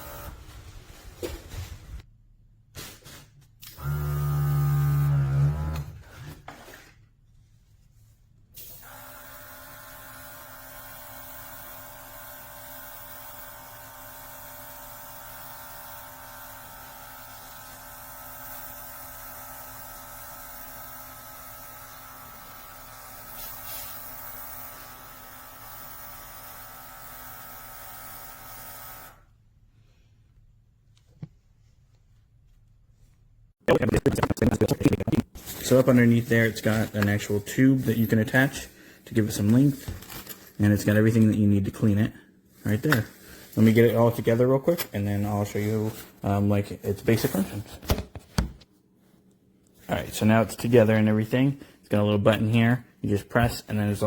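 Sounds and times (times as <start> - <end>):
electric motor humming: 3.8 - 5.9.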